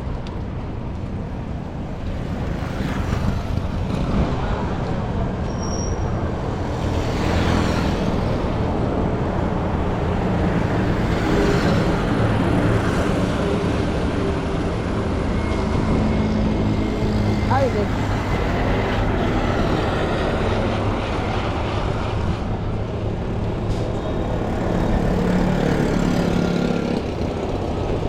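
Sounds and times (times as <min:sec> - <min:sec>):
vehicles passing: 0:00.0 - 0:28.0
steady engine hum: 0:06.1 - 0:28.0.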